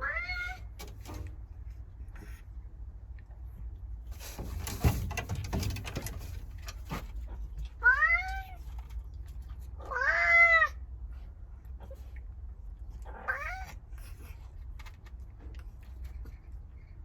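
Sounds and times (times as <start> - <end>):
cat meowing: 0.0 - 0.7, 7.8 - 8.6, 9.8 - 10.8, 13.1 - 13.8.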